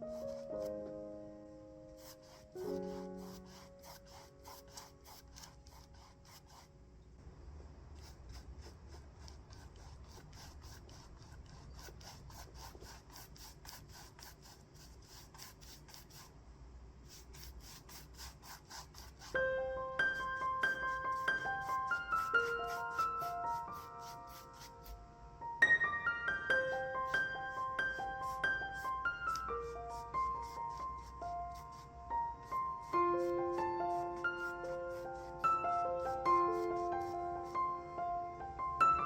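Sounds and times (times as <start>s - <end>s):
paintbrush strokes on canvas: 0.0s - 0.8s, 1.9s - 6.7s, 8.0s - 16.4s, 17.0s - 25.1s, 26.5s - 37.8s
soft background music: 0.0s - 7.0s, 19.0s - 39.0s.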